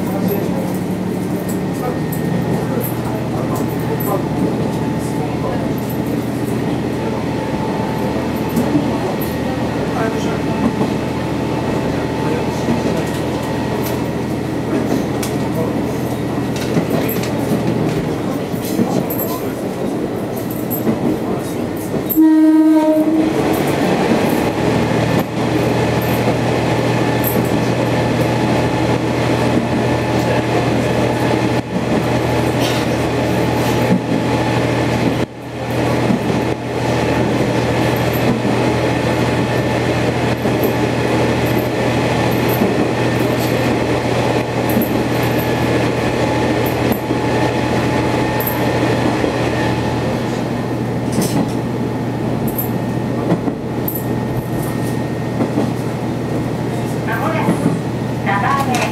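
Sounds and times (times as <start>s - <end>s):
diesel railcar running: 0.0s - 58.9s
railcar horn blast: 22.1s - 23.6s.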